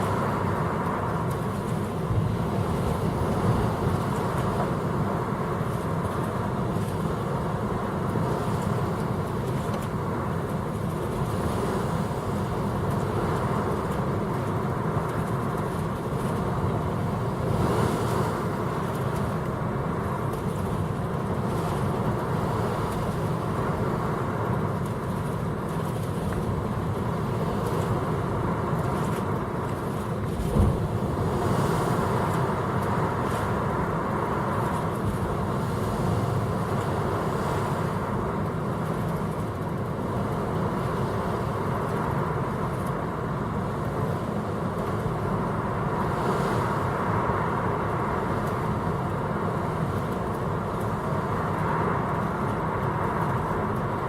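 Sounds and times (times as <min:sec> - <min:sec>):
ship engine rumble: 0:00.0 - 0:54.0
water rushing along hull: 0:00.0 - 0:54.0
short low thump: 0:30.4 - 0:30.8.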